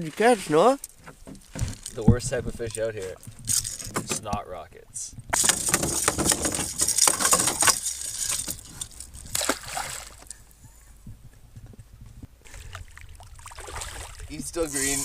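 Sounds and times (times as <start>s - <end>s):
fish thrashing in water: 5.4s - 10.4s, 12.5s - 14.4s.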